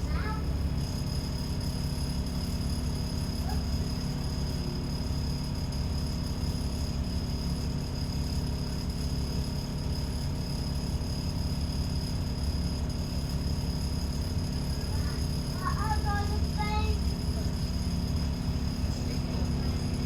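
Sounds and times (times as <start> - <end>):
bus diesel engine humming: 0.0 - 1.4, 14.8 - 20.0.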